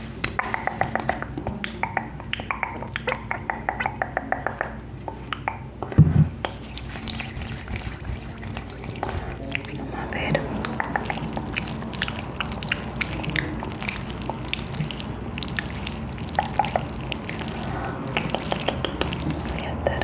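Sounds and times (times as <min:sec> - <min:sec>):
skin rubbing and pressing: 0:06.4 - 0:20.0.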